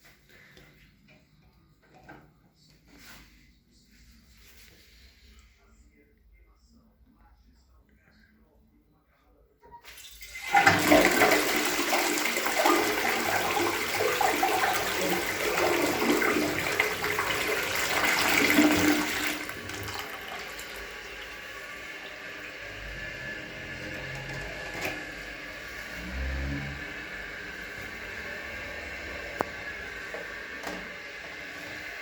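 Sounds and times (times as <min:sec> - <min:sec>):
cistern refilling with water: 0:09.8 - 0:32.0
toilet flushing: 0:09.8 - 0:32.0.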